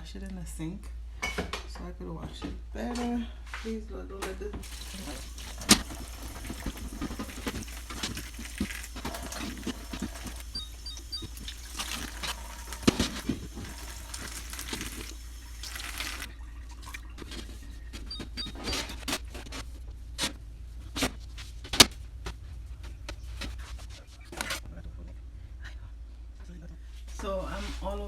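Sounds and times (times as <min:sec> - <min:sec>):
tap running into sink: 0:04.6 - 0:18.9.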